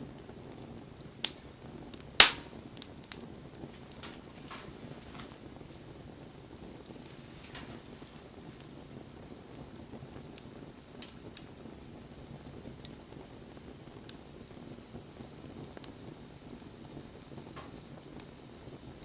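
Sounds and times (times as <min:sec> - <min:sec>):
fire crackles and pops: 0:00.0 - 0:19.0
low rush of flame: 0:00.2 - 0:19.0.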